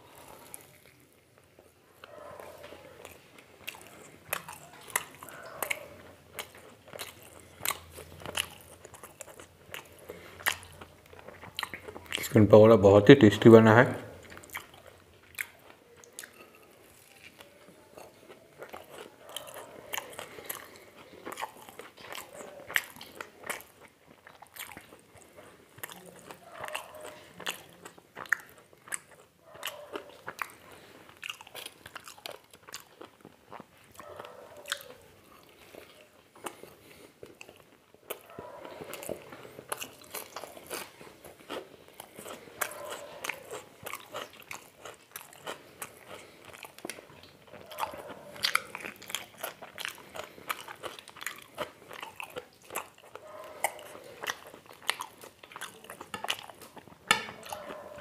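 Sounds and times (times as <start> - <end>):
wet chewing: 0.0 - 58.0.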